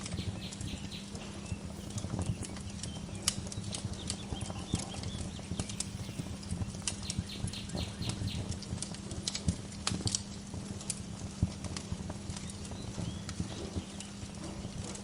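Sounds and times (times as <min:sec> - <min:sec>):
faint bird chirps: 0:00.0 - 0:08.6
wood fire crackling and popping: 0:00.0 - 0:15.0.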